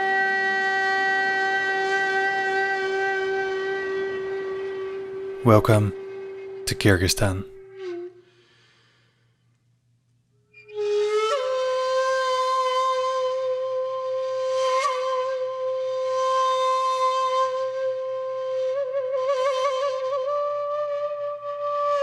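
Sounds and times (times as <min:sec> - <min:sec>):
breathy wind instrument note: 0:07.4 - 0:09.4.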